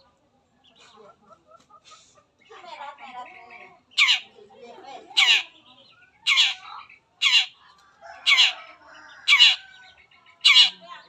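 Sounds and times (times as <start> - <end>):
bird giving scratchy calls: 4.0 - 4.3, 5.2 - 5.5, 6.2 - 6.6, 7.2 - 7.5, 9.3 - 9.6, 10.4 - 10.8.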